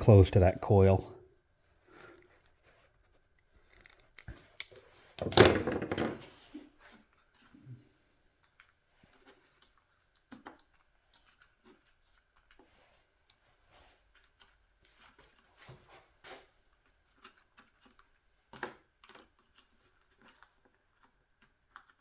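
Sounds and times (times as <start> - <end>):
small parts clicking and rustling: 2.0 - 2.6, 3.4 - 6.3.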